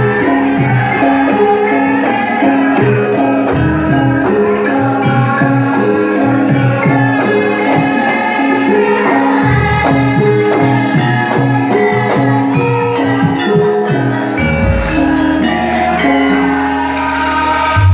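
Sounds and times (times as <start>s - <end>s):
band music with steady beat: 0.0s - 17.9s
jingling percussion: 0.0s - 17.9s
deep bass line: 14.4s - 16.0s.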